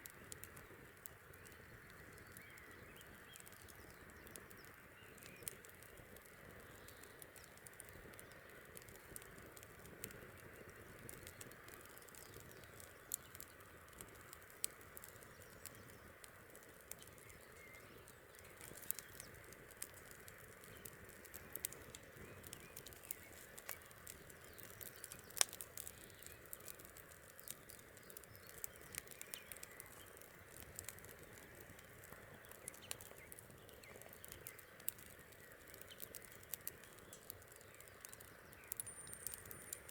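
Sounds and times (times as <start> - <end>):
soft steady hiss: 0.0 - 39.9
wood fire crackling and popping: 0.0 - 39.9.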